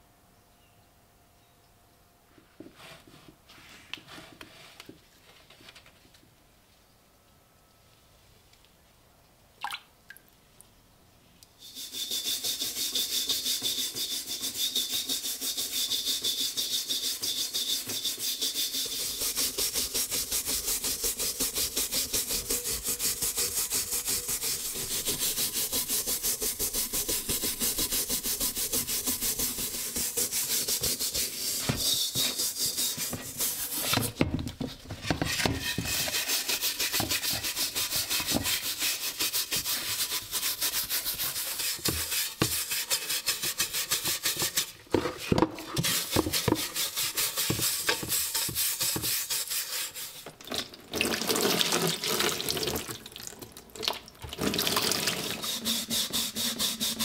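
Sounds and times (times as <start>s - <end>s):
scrubbing rust off steel helmet: 11.7s - 34.3s, 34.9s - 50.4s, 54.9s - 57.0s.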